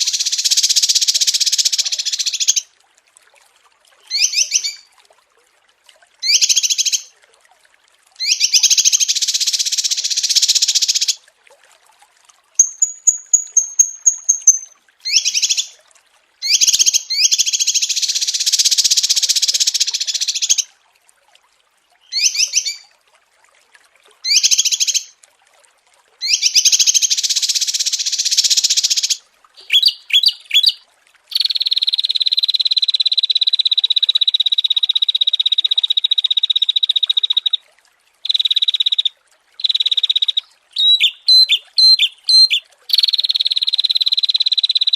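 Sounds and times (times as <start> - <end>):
songbird chirping and trilling: 4.1 - 4.8, 8.2 - 11.2, 12.6 - 15.8, 22.1 - 22.8, 28.2 - 32.8, 38.3 - 44.9.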